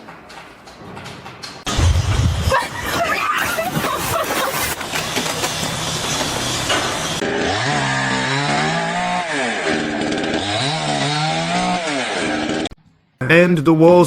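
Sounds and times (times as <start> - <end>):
noisy clatter: 0.0 - 7.4
engine revving: 4.8 - 12.8.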